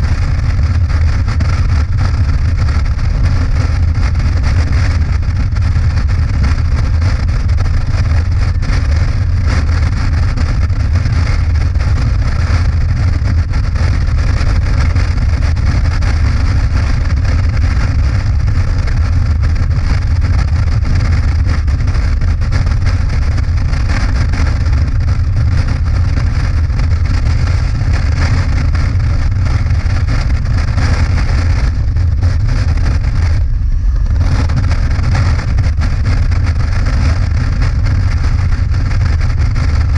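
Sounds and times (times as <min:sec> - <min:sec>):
motorcycle engine rumble: 0:00.0 - 0:39.9
rushing wind: 0:00.0 - 0:39.9.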